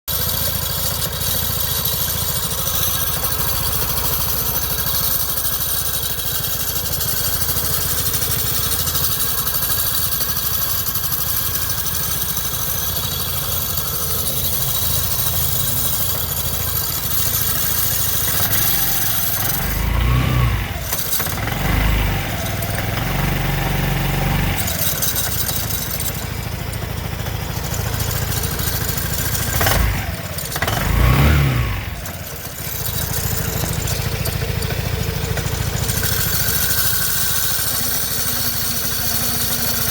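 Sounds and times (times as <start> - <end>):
scooter engine running: 0.0 - 39.9
grinding noise: 12.8 - 39.9.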